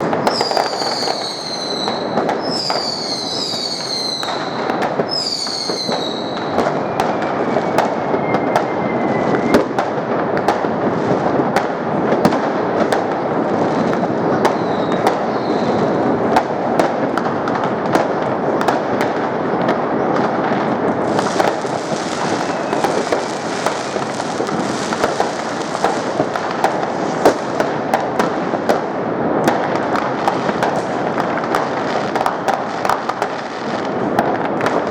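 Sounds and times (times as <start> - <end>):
falling firework whistles: 0.0 - 10.6, 13.7 - 16.0, 21.0 - 27.6
fireworks crackling and banging: 0.0 - 34.9.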